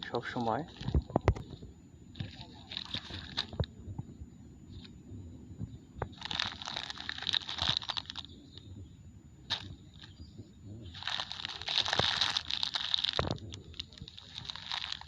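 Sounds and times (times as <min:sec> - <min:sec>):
plastic bag crinkling: 0:02.2 - 0:03.7, 0:06.1 - 0:08.3, 0:09.5 - 0:10.1, 0:10.9 - 0:15.0.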